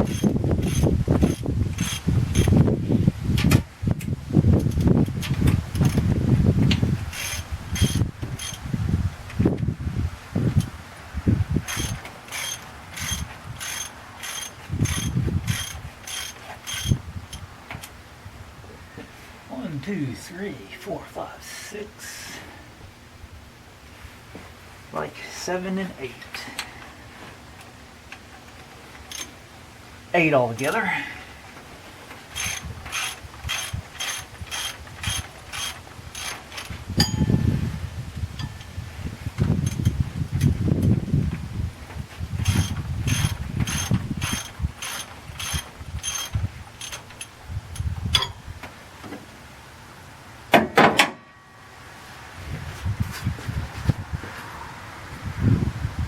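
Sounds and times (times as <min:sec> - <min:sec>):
ratchet wrench clicking: 0:00.0 - 0:02.6, 0:07.1 - 0:08.6, 0:11.6 - 0:17.4, 0:29.1 - 0:29.3, 0:32.3 - 0:37.2, 0:42.4 - 0:48.4
low rumble: 0:37.0 - 0:41.6.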